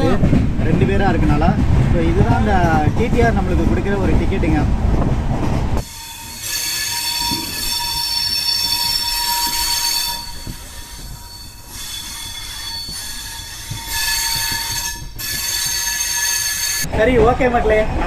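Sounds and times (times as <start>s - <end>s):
train wheels squealing: 5.8s - 16.9s.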